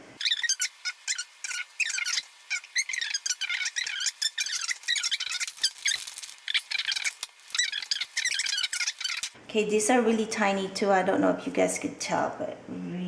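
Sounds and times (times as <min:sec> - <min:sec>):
small birds chirping: 0:00.0 - 0:09.4.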